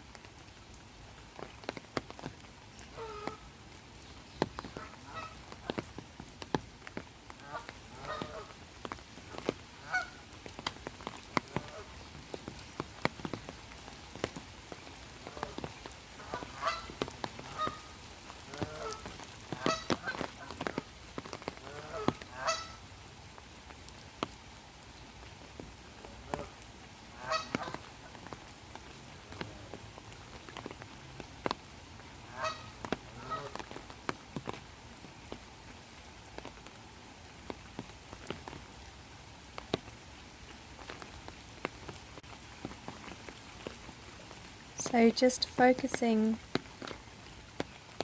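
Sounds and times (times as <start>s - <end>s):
raindrops falling on water: 0.0s - 48.0s
geese honking: 9.8s - 10.2s, 16.2s - 17.9s, 18.5s - 19.0s, 19.6s - 20.2s, 21.6s - 22.8s, 27.2s - 27.8s, 32.3s - 33.6s.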